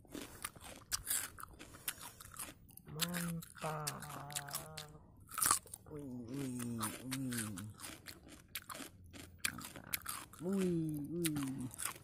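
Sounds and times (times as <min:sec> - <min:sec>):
crunching raw cucumber: 0:00.0 - 0:12.0
voice making wavering sounds: 0:02.8 - 0:05.2, 0:05.8 - 0:07.8, 0:09.8 - 0:11.8.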